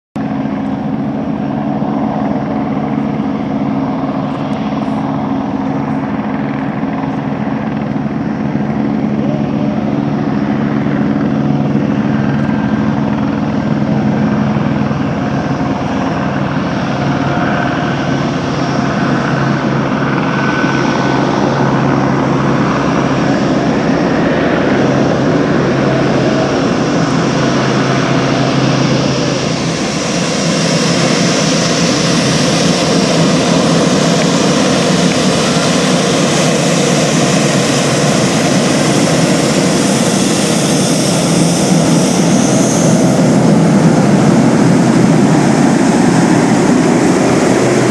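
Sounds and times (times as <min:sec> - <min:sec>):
aircraft engines rumbling: 0:00.2 - 0:47.9.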